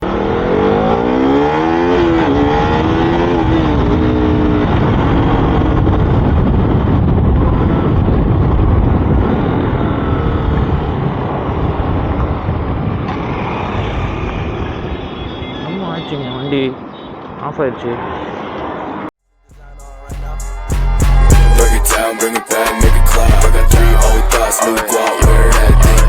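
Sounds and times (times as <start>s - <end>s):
motorcycle engine accelerating: 0.0s - 15.3s
wind and road noise: 0.0s - 19.2s.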